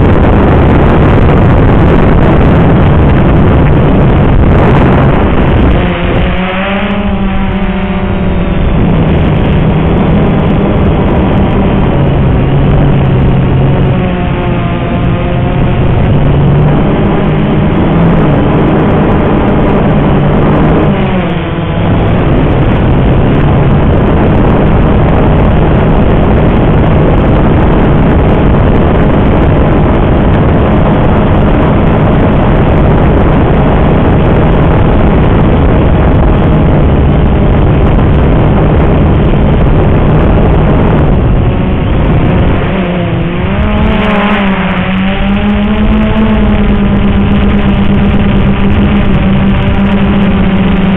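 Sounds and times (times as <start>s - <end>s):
quadcopter motors humming: 0.0s - 50.9s
wind buffeting: 0.0s - 50.9s.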